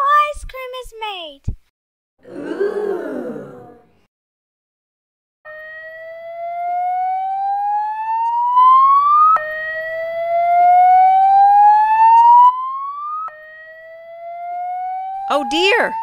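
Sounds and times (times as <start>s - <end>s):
fire alarm siren rising: 5.5s - 16.0s.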